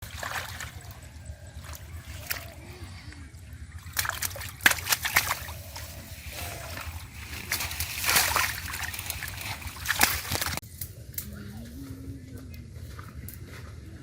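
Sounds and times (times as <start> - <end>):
water splashing and sloshing: 0.0 - 10.6.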